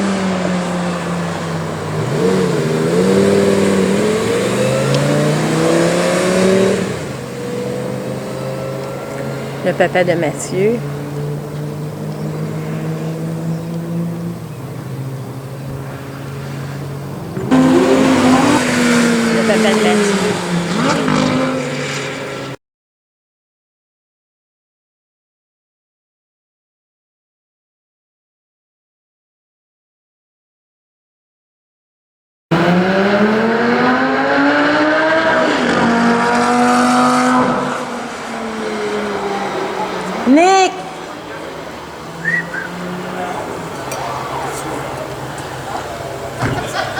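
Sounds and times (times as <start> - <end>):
sports car engine running: 0.0 - 22.6, 32.5 - 46.9.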